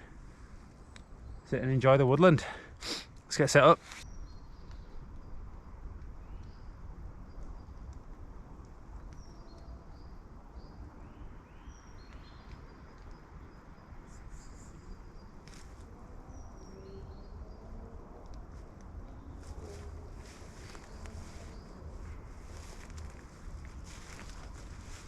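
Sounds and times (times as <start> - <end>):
wind rumble: 4.0 - 25.0
birds chirping: 9.0 - 25.0.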